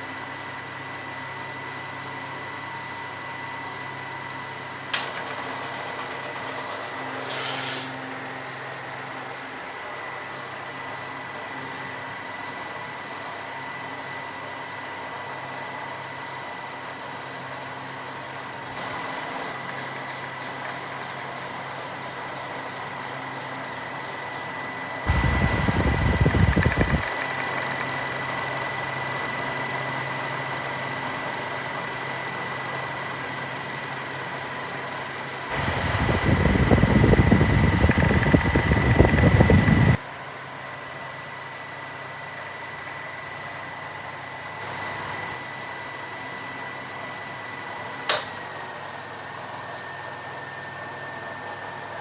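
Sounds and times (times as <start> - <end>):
box fan motor hum: 0.6 - 16.4, 23.5 - 40.0
airflow buffeting microphone: 25.1 - 27.1, 35.5 - 40.0.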